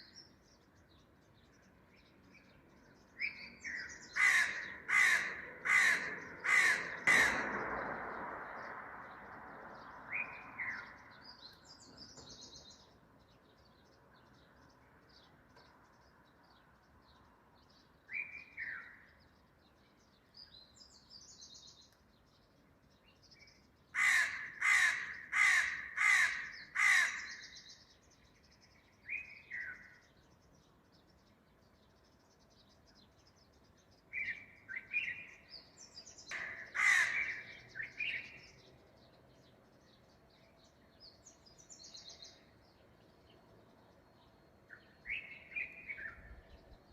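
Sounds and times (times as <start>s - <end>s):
small birds chirping faintly: 0.0s - 46.9s
crow cawing: 4.1s - 7.4s, 24.0s - 27.4s, 36.3s - 37.6s.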